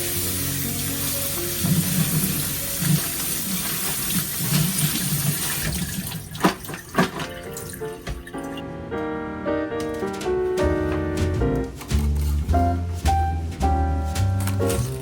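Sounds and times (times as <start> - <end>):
tap water splashing into sink: 0.0 - 8.6
sharp knocks: 9.8 - 15.0.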